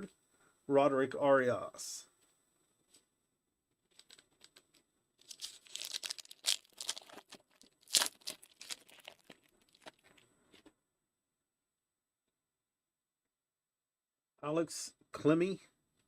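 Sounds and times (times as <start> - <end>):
plastic wrapper tearing and crinkling: 5.2 - 10.2.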